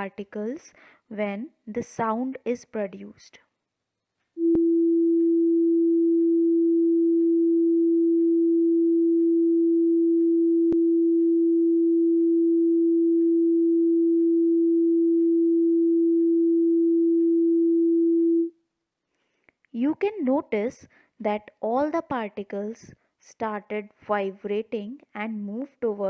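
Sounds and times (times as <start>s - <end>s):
steady pure tone: 4.4s - 18.5s.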